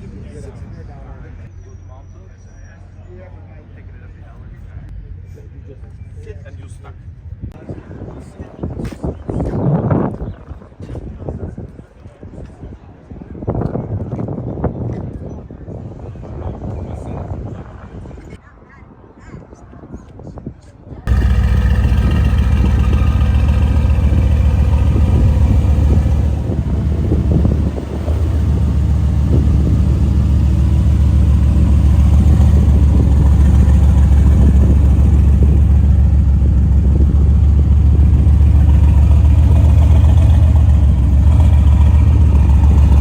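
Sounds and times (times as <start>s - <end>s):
car engine running loudly: 21.1s - 43.0s.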